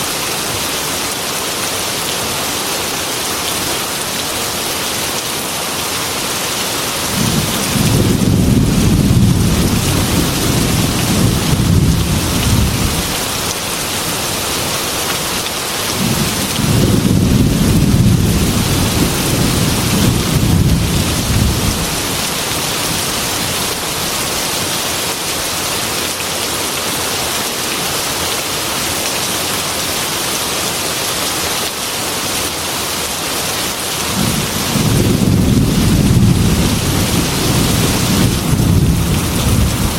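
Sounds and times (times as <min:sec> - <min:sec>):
heavy rain on glass window: 0:06.2 - 0:26.6, 0:33.2 - 0:39.9
thunder rolling: 0:07.2 - 0:13.0, 0:16.0 - 0:22.1, 0:34.2 - 0:39.9.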